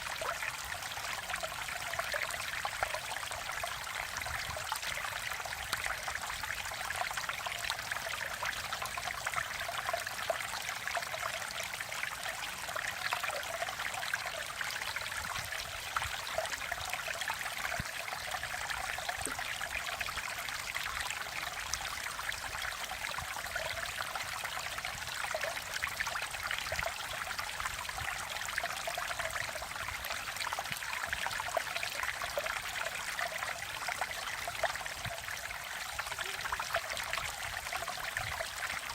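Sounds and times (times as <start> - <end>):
stream flowing and splashing: 0.0 - 38.9.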